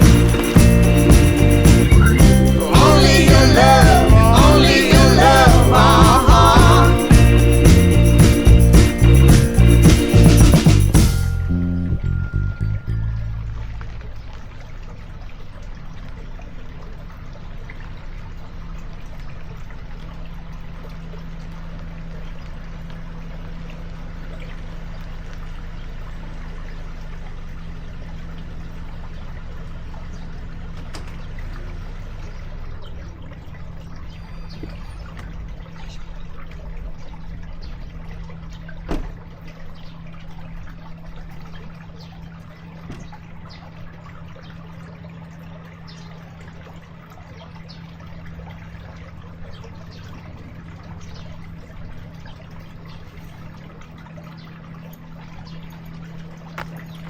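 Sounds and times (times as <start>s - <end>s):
water running: 0.0s - 21.8s
low steady hum: 0.0s - 57.0s.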